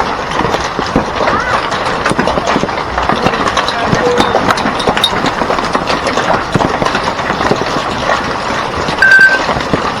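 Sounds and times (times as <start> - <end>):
hail and heavy rain pelting: 0.0 - 10.0
high steady beep: 9.0 - 9.4.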